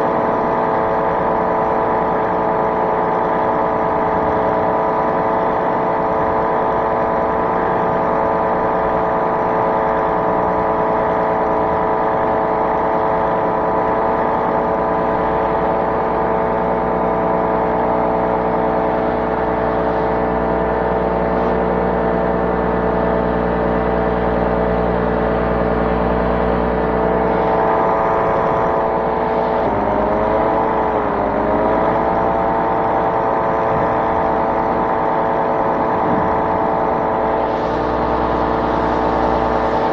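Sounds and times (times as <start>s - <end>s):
small aircraft engine running: 0.0s - 39.9s.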